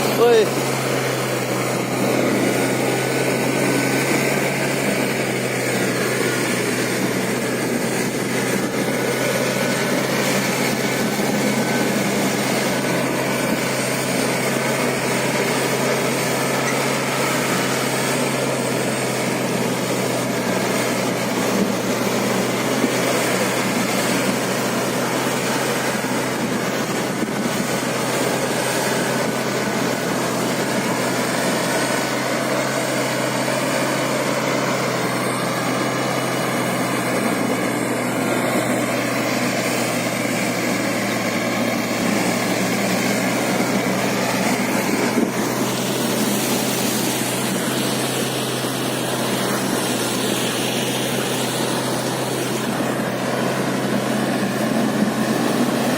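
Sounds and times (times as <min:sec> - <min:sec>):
vehicle engine droning: 0:00.0 - 0:55.9.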